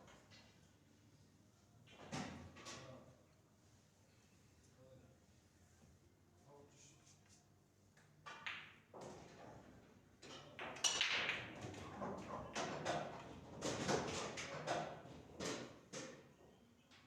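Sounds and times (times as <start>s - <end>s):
pool balls clacking: 10.6s - 16.2s.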